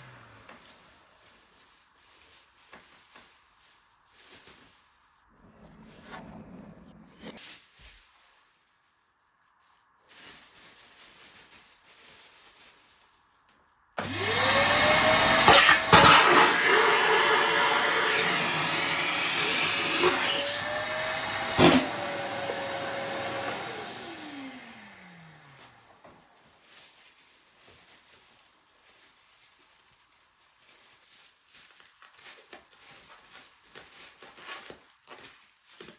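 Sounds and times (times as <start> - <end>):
vacuum cleaner motor whine: 0.0 - 0.8, 14.0 - 26.0
rustling handling: 0.0 - 5.3, 7.4 - 35.9.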